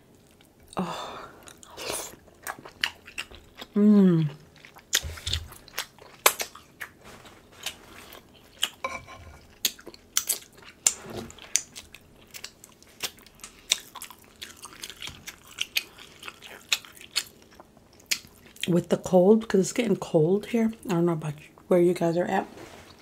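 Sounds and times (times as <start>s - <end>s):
wet chewing and lip smacks: 1.4s - 7.0s, 9.5s - 18.7s.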